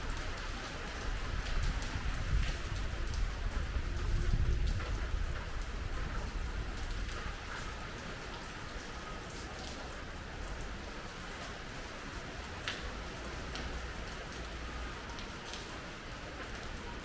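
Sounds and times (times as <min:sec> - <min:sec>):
heavy rain falling: 0:00.0 - 0:17.0
raindrops clicking on surfaces: 0:00.0 - 0:17.0
wind gusts on microphone: 0:01.2 - 0:07.4.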